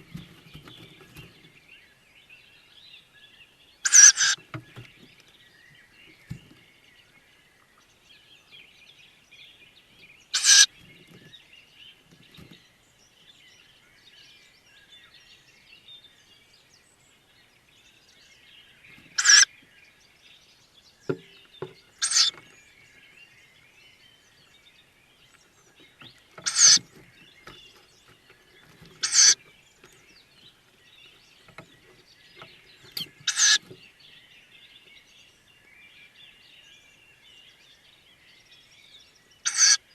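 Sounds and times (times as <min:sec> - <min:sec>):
faint bird chirping: 0:00.0 - 0:39.9
owl chicks hissing calls: 0:03.8 - 0:04.4, 0:10.3 - 0:11.3, 0:19.0 - 0:19.5, 0:22.0 - 0:22.5, 0:25.6 - 0:29.5, 0:31.8 - 0:33.8, 0:39.4 - 0:39.9.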